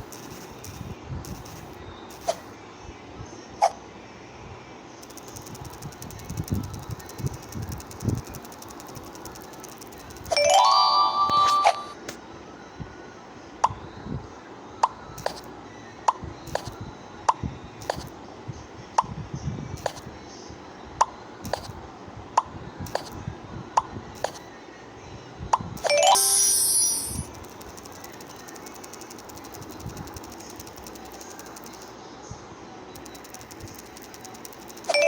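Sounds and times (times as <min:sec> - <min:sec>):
bright chime: 0:10.3 - 0:12.0, 0:25.8 - 0:27.3.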